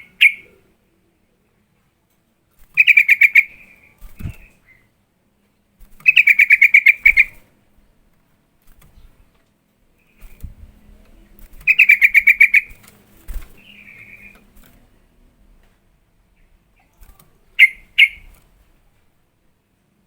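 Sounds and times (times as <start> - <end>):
bird chattering call: 0.0 - 0.6, 2.8 - 3.8, 6.0 - 7.4, 11.7 - 12.7, 17.6 - 18.3
soft bird warble: 2.5 - 4.9, 8.7 - 15.0, 16.4 - 18.9.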